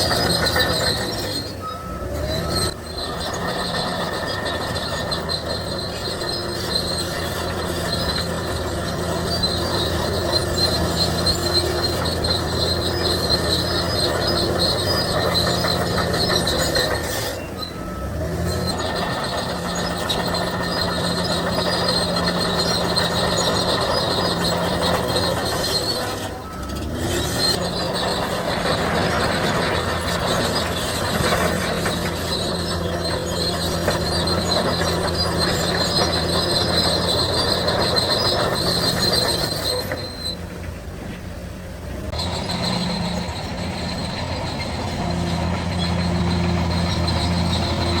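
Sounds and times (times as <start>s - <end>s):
diesel engine under load: 0.0s - 48.0s
steel tracks squealing and clanking: 0.0s - 48.0s.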